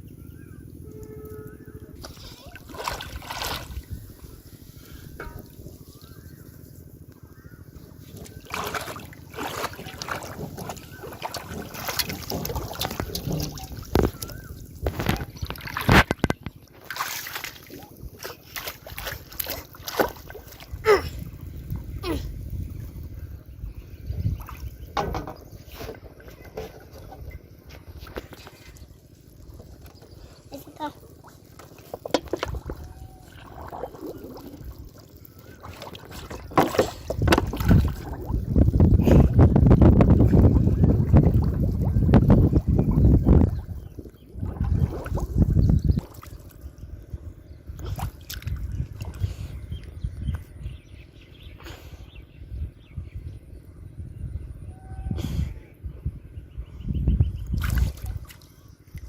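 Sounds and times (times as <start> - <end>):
wind rumble on microphone: 0.0 - 30.8, 31.8 - 59.0
pond water sloshing: 0.0 - 51.0, 57.3 - 59.0
sharp splashes: 2.0 - 6.2, 8.2 - 21.0, 30.5 - 38.6, 57.6 - 58.5.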